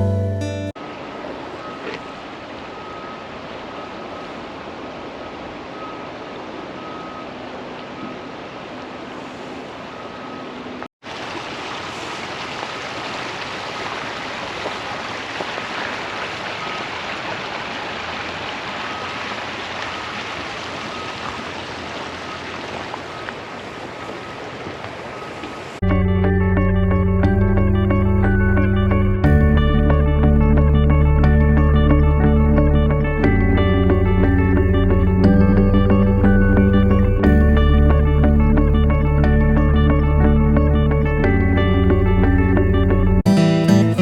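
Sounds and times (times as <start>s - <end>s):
water rushing in a creek: 0.8s - 25.8s.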